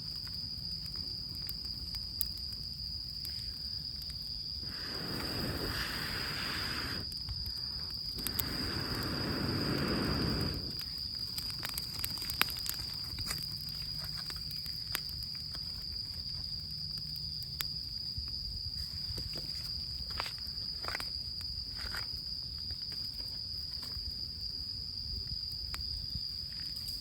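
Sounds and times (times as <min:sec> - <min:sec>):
campfire crackling and popping: 0:00.0 - 0:27.0
insect trilling: 0:03.0 - 0:17.6.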